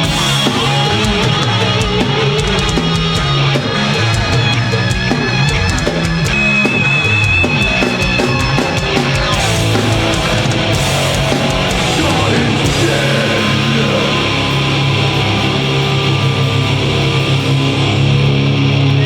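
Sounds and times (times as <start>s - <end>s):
rapid drum hits: 0.0s - 14.0s
electric guitar low chords: 0.0s - 19.0s
heavy metal band playing live: 0.0s - 19.0s.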